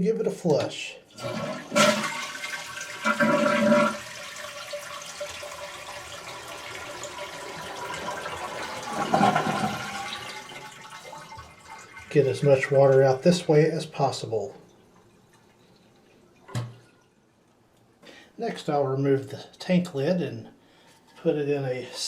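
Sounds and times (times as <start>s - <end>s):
toilet flushing: 1.1s - 14.5s.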